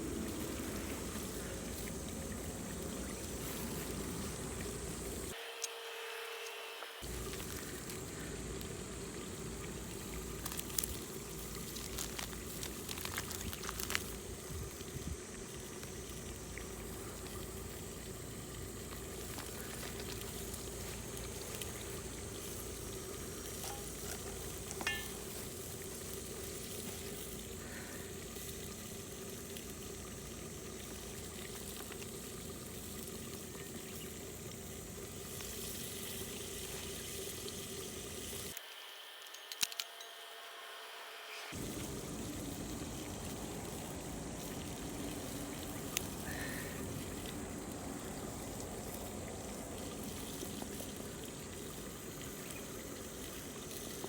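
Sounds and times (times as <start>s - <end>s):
food sizzling in a pot: 17.6s - 39.0s, 41.3s - 46.4s.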